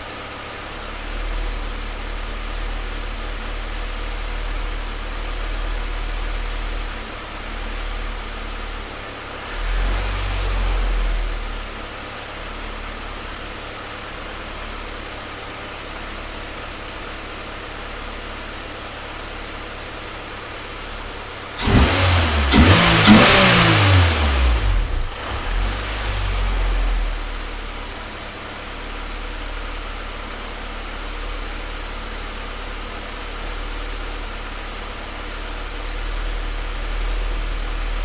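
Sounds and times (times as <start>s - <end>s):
car engine idling rough: 0.0s - 38.0s
car engine revving: 7.6s - 11.9s, 21.6s - 28.4s.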